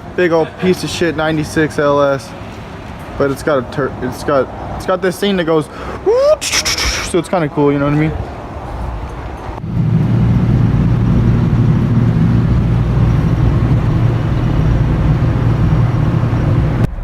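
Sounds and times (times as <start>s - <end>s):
car engine droning: 9.6s - 17.0s.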